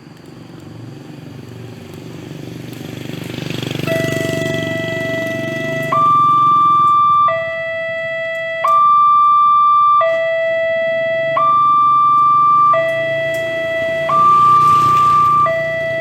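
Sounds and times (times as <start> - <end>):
level crossing alarm two-tone: 3.8 - 16.0.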